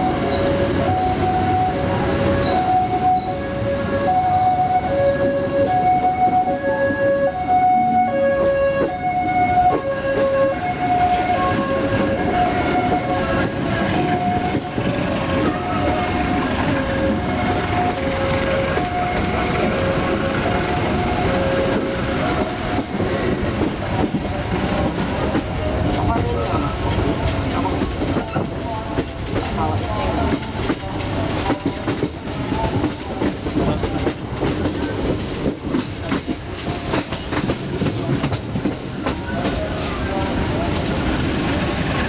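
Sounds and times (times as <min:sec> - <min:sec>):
two-tone warning signal: 0:00.0 - 0:23.8
train rumbling inside carriage: 0:00.0 - 0:42.0.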